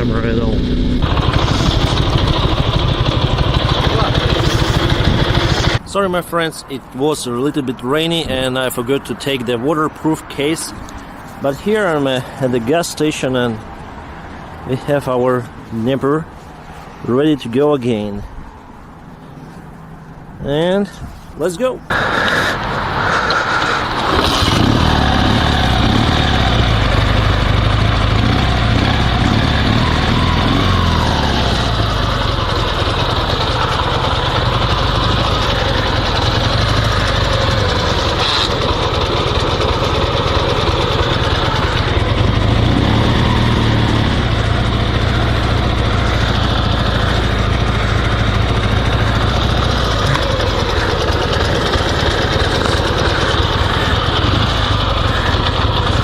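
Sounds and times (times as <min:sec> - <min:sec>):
motorcycle engine running: 0:00.0 - 0:05.8, 0:23.5 - 0:56.0.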